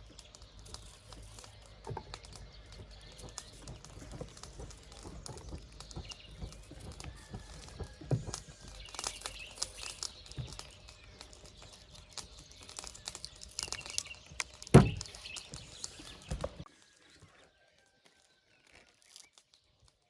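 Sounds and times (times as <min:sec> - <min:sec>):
light clicks and knocks: 0:00.0 - 0:16.6
birds chirping: 0:00.0 - 0:20.0
loud thump: 0:14.7 - 0:15.1.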